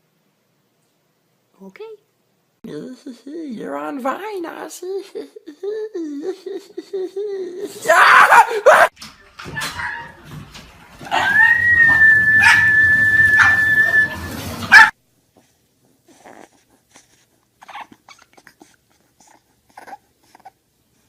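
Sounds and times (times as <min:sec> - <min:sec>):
dog whining: 0:11.1 - 0:14.9, 0:16.1 - 0:20.6.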